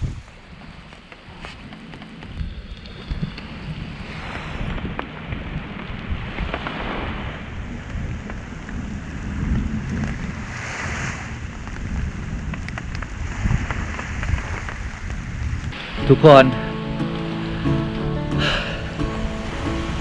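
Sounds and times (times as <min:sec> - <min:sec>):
heavy rain pouring: 0:15.7 - 0:20.0.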